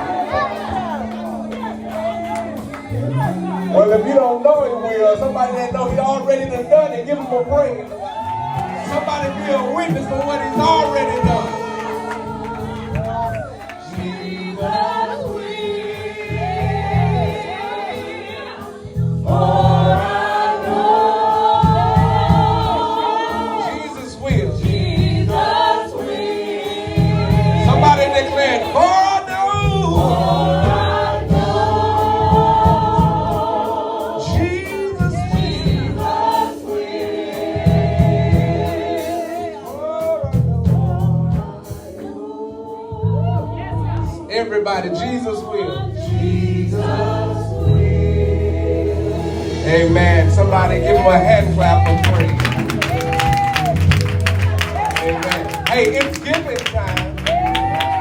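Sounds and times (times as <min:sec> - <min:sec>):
low bass notes: 0:00.0 - 0:07.8, 0:08.4 - 0:15.4, 0:16.2 - 0:17.6, 0:18.9 - 0:20.5, 0:21.4 - 0:22.9, 0:24.2 - 0:25.6, 0:26.9 - 0:28.5, 0:29.5 - 0:33.6, 0:34.2 - 0:36.4, 0:37.6 - 0:39.0, 0:40.2 - 0:41.8, 0:43.0 - 0:44.3, 0:45.6 - 0:58.0
band accompaniment with beat: 0:00.0 - 0:42.7, 0:46.1 - 0:58.0
gospel choir singing: 0:00.0 - 0:58.0.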